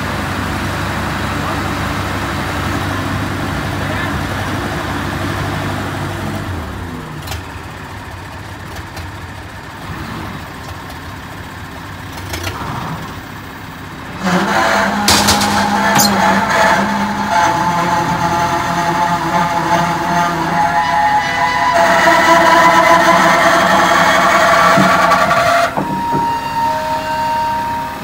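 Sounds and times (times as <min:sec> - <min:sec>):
truck diesel engine humming: 0:00.0 - 0:28.0
sustained high tone: 0:15.7 - 0:17.0.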